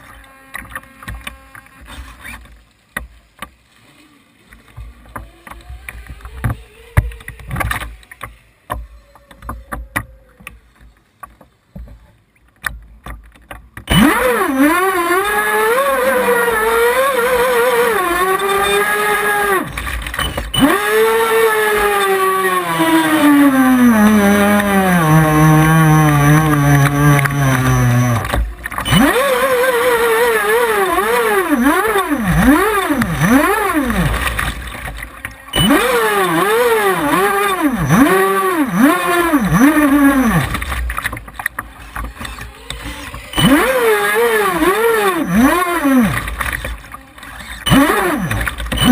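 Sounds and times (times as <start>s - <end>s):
small engine revving: 13.9s - 48.9s.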